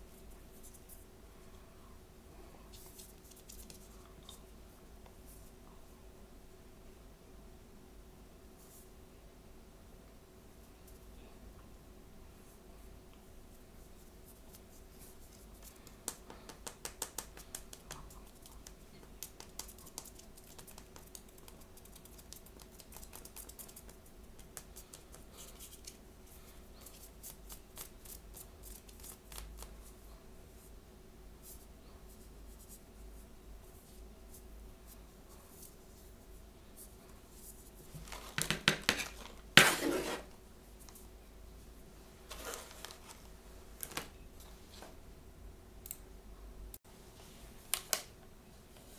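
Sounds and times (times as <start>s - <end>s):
packaging scratching and rustling: 38.0s - 40.4s, 42.2s - 44.1s
small clicks and snips: 45.8s - 46.0s.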